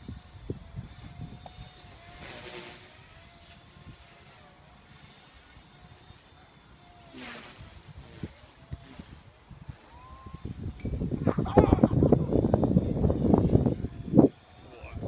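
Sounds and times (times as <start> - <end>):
wind rumble on microphone: 0.0 - 4.1, 7.1 - 15.0
helicopter whooshing: 0.0 - 15.0
rc helicopter rotor whine: 0.0 - 15.0.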